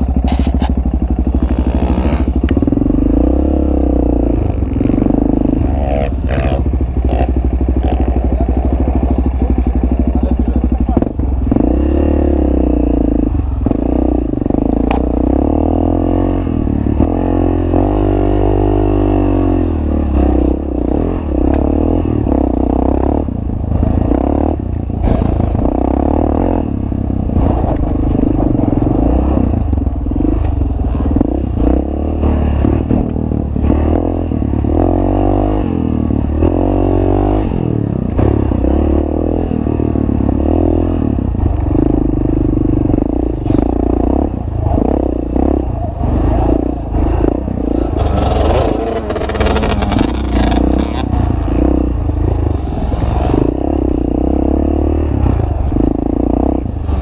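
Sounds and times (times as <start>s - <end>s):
motorbike engine revving: 0.0s - 57.0s.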